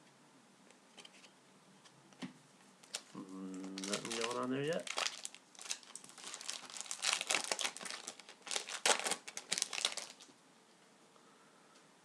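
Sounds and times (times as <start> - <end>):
card pack wrapper crinkling: 2.8 - 10.3.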